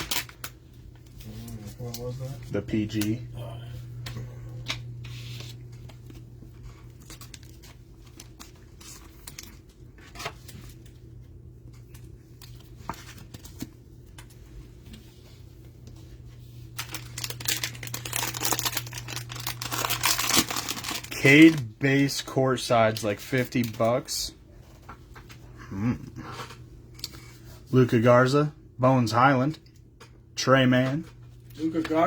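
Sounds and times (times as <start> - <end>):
packaging wrapper tearing and crinkling: 0.0 - 0.6, 16.8 - 21.6
low steady hum: 0.0 - 32.0.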